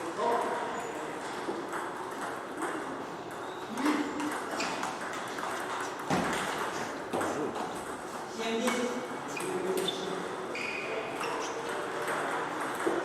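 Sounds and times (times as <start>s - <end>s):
table tennis ball clicking: 11.2s - 13.0s.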